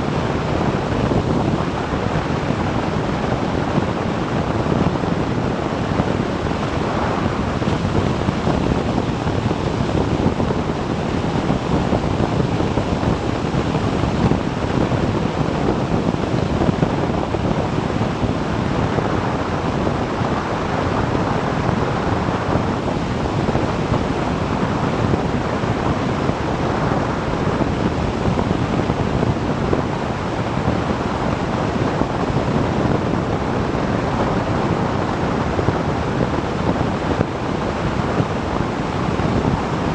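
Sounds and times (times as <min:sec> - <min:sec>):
road noise: 0:00.0 - 0:11.4
wind on microphone: 0:00.0 - 0:39.9.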